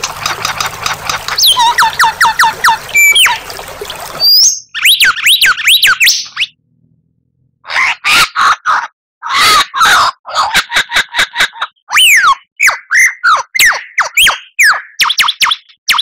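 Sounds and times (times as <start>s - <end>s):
bird whistling: 1.3s - 3.4s, 4.2s - 6.6s.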